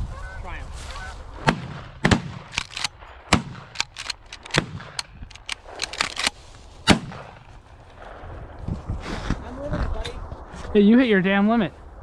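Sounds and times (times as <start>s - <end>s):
shotgun shots: 1.5s - 7.3s.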